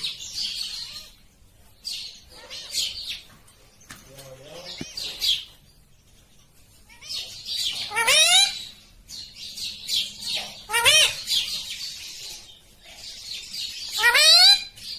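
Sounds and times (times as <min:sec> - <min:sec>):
parakeet calling: 0:00.0 - 0:01.2, 0:06.9 - 0:14.9.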